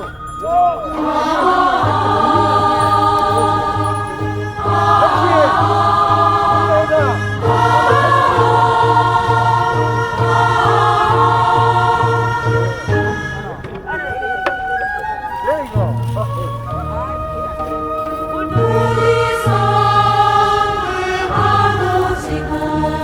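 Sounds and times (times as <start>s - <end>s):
chorus of voices singing: 0.0s - 14.0s, 18.3s - 23.0s
steady low beat: 0.0s - 14.0s.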